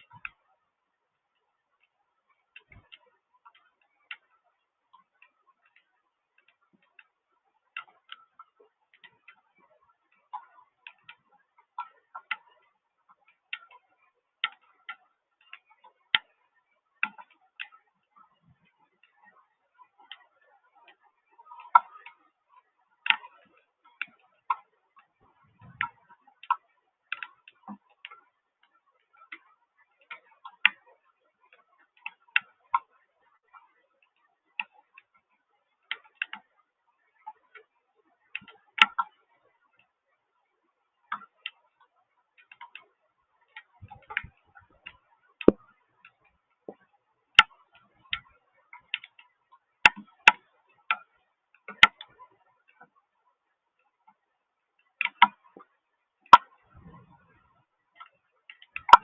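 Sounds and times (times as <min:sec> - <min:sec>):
water drops ticking on hard surface: 0:58.0 - 0:59.0.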